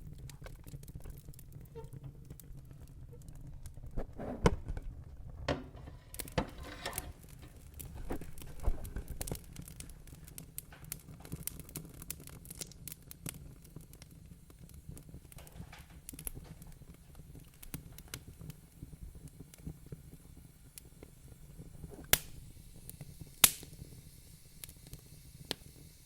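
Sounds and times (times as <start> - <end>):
wood fire crackling: 0.0 - 26.0
sharp fire pops: 20.4 - 24.0.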